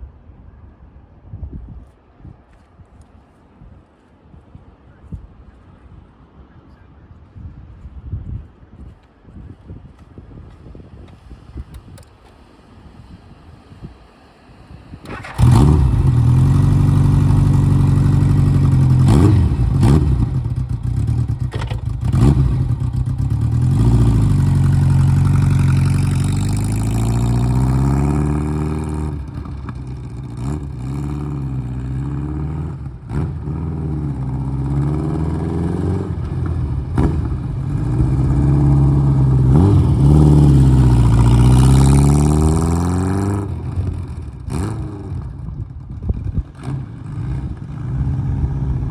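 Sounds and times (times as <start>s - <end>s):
motorcycle engine revving: 14.6s - 48.9s.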